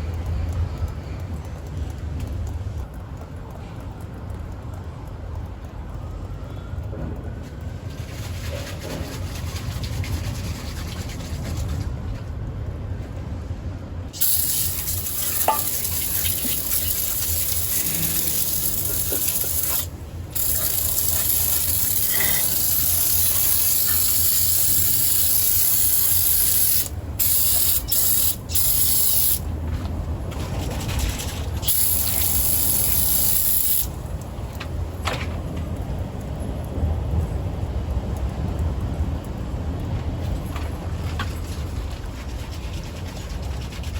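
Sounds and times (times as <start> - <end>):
aerosol can spraying: 14.2 - 29.4, 31.6 - 34.0.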